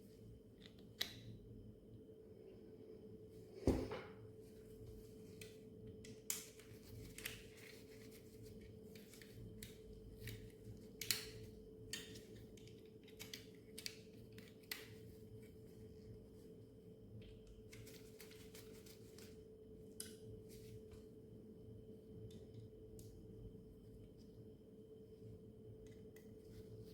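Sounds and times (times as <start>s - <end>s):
faint steady hum: 0.0s - 26.9s
plastic toy parts clicking: 9.0s - 15.0s.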